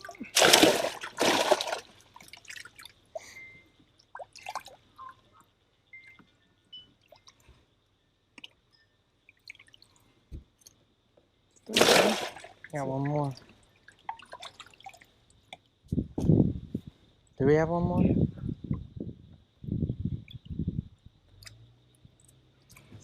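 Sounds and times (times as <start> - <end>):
water splashing: 0.0 - 3.0, 11.7 - 15.1
water dripping: 0.0 - 5.5, 7.0 - 7.6, 8.3 - 10.8, 11.5 - 15.8, 21.3 - 22.9.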